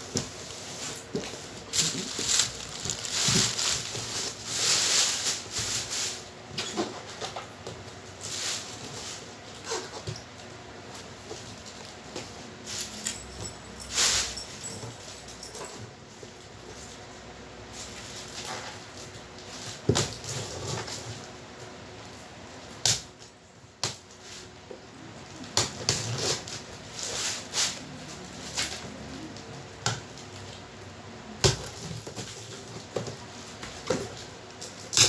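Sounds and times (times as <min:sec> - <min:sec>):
packaging rustling: 0:00.3 - 0:06.2.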